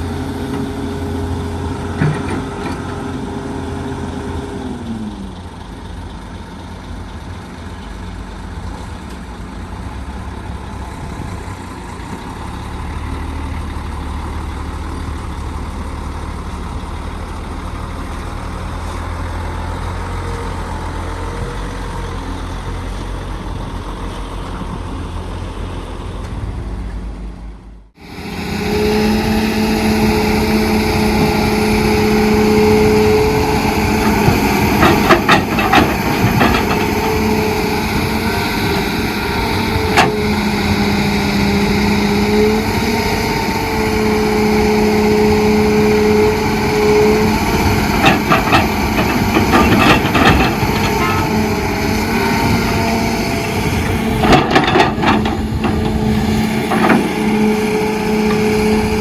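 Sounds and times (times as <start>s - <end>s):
diesel machinery running: 0.0s - 59.0s
machine whining: 28.0s - 59.0s.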